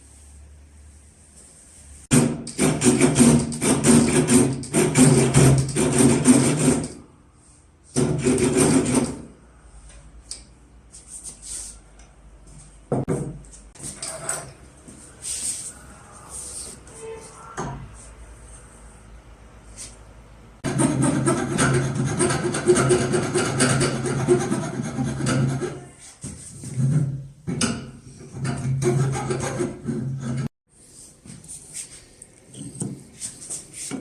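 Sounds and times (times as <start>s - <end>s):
knocks and scrapes: 12.9s - 18.3s, 20.6s - 30.5s
hand tool rasping wood: 20.7s - 26.0s, 28.3s - 30.5s.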